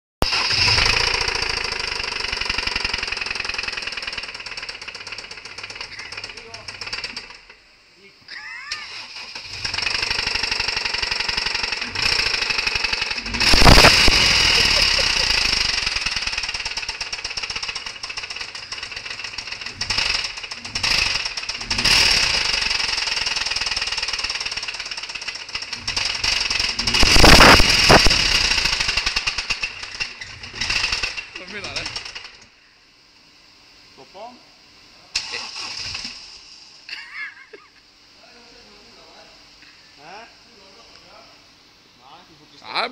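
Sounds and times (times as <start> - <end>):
engine heavy metallic knocking: 9.6 - 32.4.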